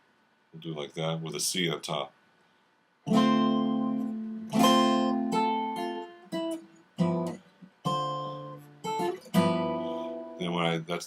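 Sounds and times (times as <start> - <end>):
jazz guitar chords: 3.1 - 11.0.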